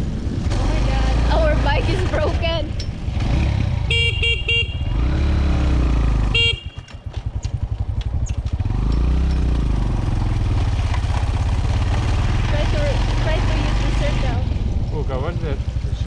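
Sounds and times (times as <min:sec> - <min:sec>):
low engine rumble: 0:00.0 - 0:16.0
motorbike horn beeping: 0:03.8 - 0:05.1, 0:06.2 - 0:07.2.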